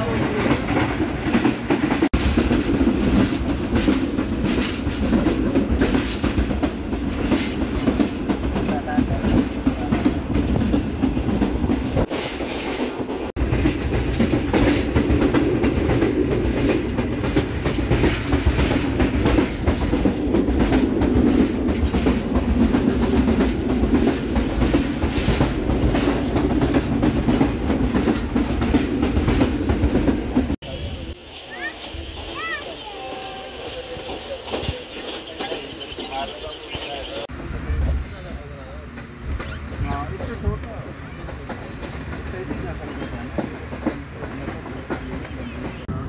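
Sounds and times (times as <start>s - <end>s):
rapid clatter over track: 0.0s - 30.6s
train wheels rumbling on rails: 0.0s - 46.0s.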